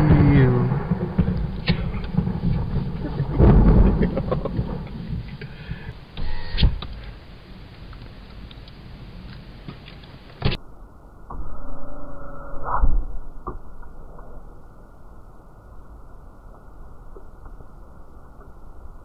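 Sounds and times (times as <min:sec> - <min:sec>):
sharp thunder crack: 0:00.0 - 0:05.3
thunder rumbling: 0:00.0 - 0:07.8, 0:10.6 - 0:17.2.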